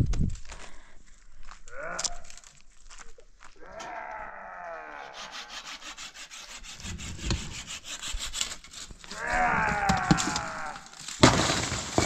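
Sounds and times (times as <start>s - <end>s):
long cry falling in pitch: 3.6s - 5.6s, 9.1s - 10.9s
hand saw cutting wood: 5.0s - 9.3s.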